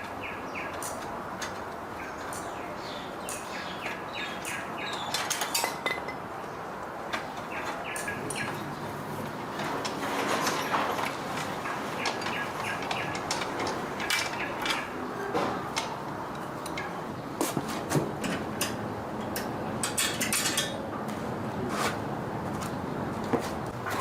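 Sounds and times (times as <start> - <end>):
metal hand tools clinking: 4.9 - 6.2.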